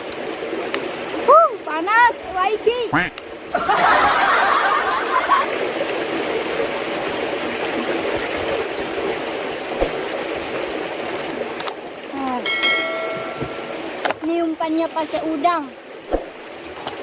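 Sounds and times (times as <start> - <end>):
trickling stream: 0.0 - 17.0.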